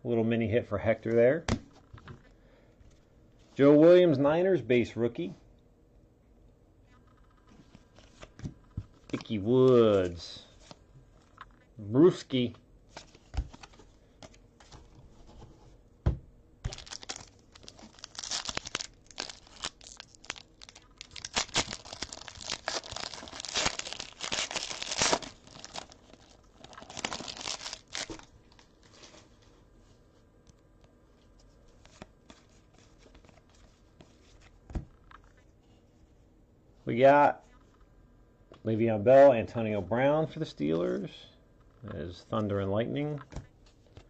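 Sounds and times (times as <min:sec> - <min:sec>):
wrapper tearing and crinkling: 0:16.7 - 0:29.2.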